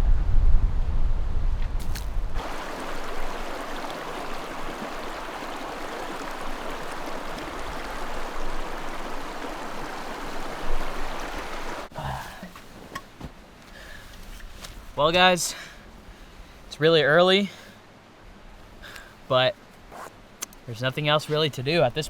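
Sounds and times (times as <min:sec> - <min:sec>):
flowing creek water: 0:01.8 - 0:12.8.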